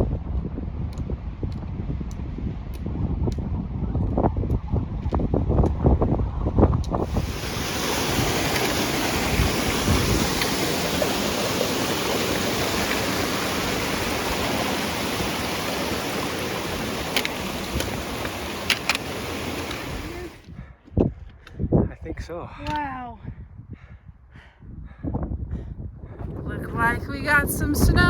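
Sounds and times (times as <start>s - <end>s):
strong wind on microphone: 0.0s - 28.0s
sharp clicks: 17.0s - 20.1s.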